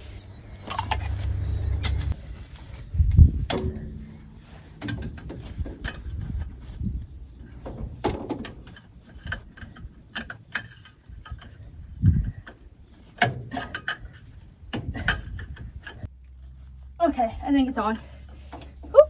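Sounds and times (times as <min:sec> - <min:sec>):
hands working on oil filter: 0:03.5 - 0:16.8.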